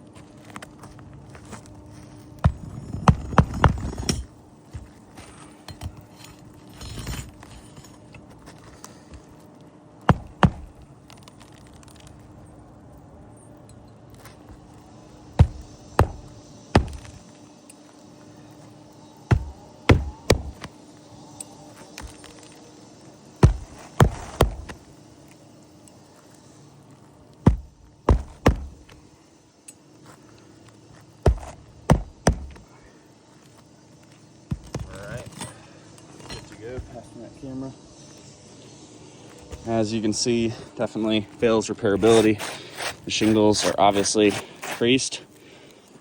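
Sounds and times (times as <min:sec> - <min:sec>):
hammer driving nails: 0:15.4 - 0:17.2, 0:19.3 - 0:20.7, 0:27.5 - 0:28.8, 0:31.3 - 0:32.6.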